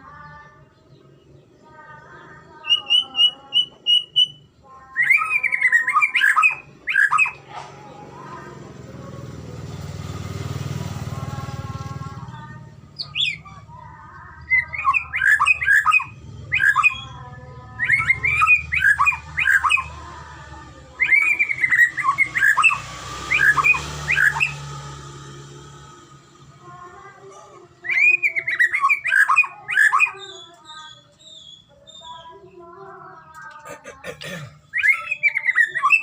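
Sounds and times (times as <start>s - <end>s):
bird singing whistles: 2.7s - 7.4s, 14.6s - 17.2s, 34.7s - 36.0s.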